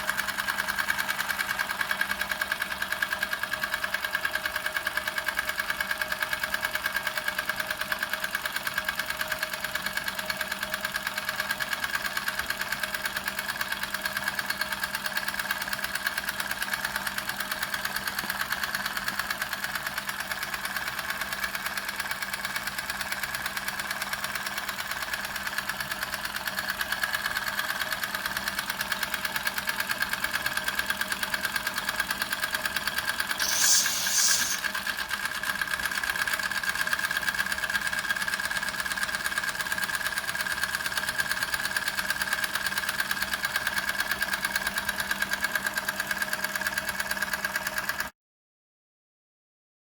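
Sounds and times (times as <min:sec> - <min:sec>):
steam hiss: 0:33.4 - 0:34.8
toy steam engine clattering: 0:33.4 - 0:34.8.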